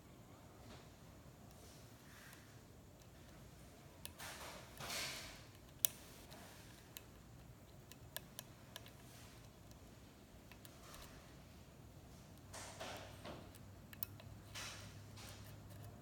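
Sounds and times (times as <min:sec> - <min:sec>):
lock pick clicking in lock: 0:12.4 - 0:14.8.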